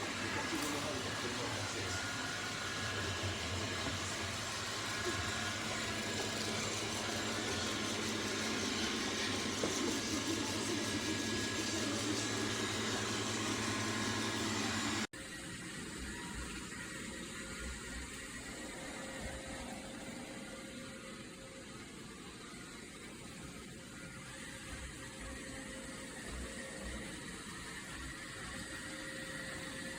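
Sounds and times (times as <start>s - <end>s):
robot vacuum motor whirring: 0.0s - 20.9s.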